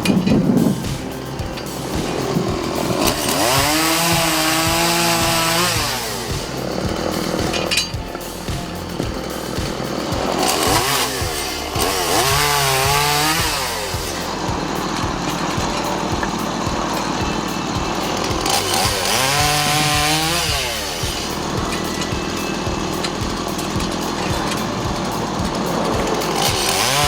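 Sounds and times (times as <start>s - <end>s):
chainsaw cutting wood: 1.8s - 8.6s, 9.6s - 14.2s, 18.4s - 21.5s, 26.4s - 27.0s.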